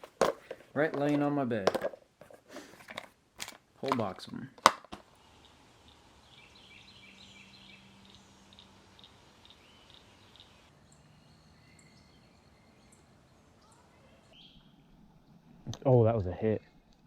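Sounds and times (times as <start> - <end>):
outdoor hiss: 0.0 - 17.0
faint bird calls: 5.1 - 15.8.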